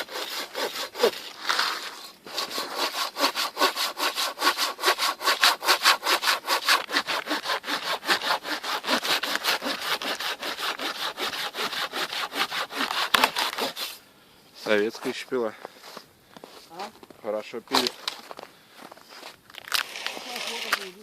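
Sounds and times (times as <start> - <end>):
hand saw cutting a log: 0.0 - 14.0.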